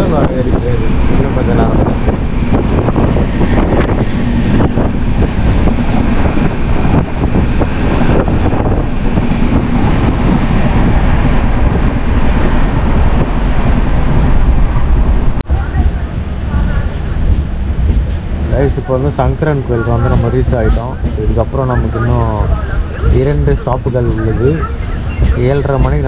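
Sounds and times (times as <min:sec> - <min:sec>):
train rumble: 0:00.0 - 0:26.0
wind buffeting microphone: 0:00.0 - 0:26.0.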